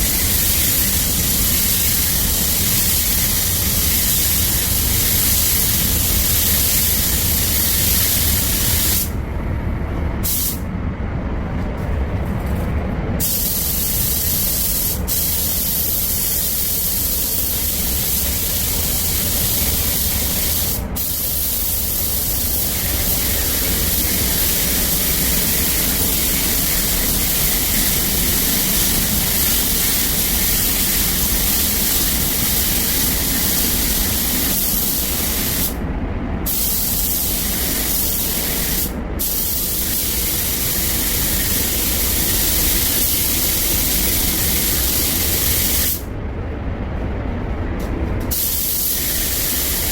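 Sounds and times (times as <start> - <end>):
spray gun hissing: 0.0 - 9.2, 10.2 - 10.6, 13.2 - 35.8, 36.5 - 46.1, 48.3 - 49.9
low hum: 9.1 - 13.2.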